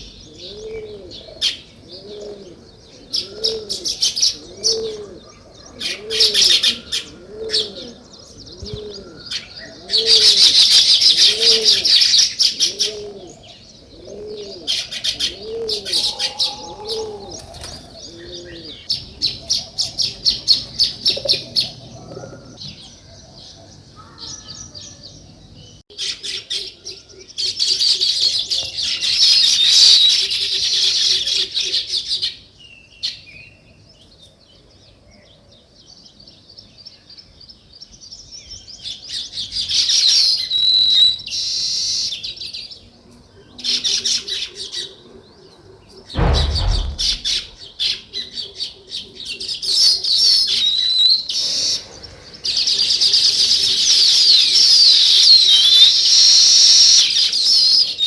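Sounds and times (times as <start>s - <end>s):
dull thump: 46.2s - 47.6s.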